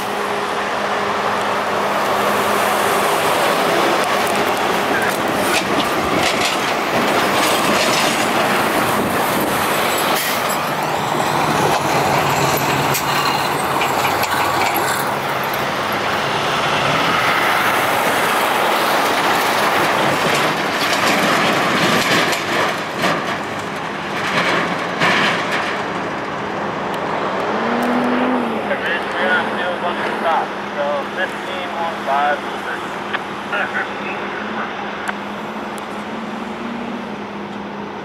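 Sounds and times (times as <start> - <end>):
road traffic: 0.0 - 38.0
freight train wheels clicking: 1.3 - 16.3, 17.4 - 27.5.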